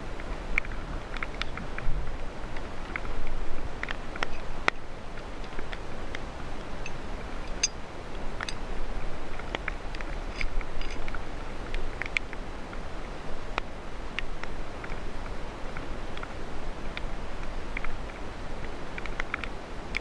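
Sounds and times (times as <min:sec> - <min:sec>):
light rain hiss: 0:00.0 - 0:20.0.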